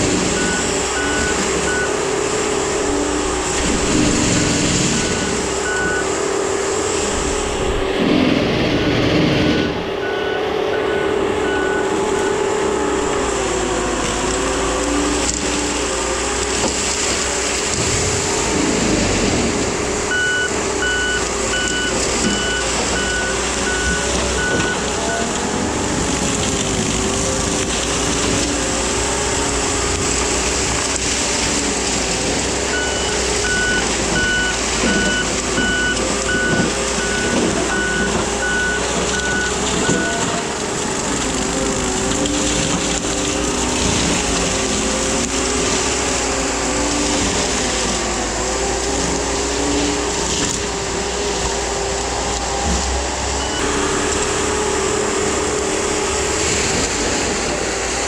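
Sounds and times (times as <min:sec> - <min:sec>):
mulching machine drone: 0:00.0 - 0:58.0
backup alarm beeping: 0:00.3 - 0:02.1, 0:04.9 - 0:06.2, 0:09.6 - 0:12.4, 0:20.1 - 0:25.4, 0:32.7 - 0:40.2, 0:53.2 - 0:54.5.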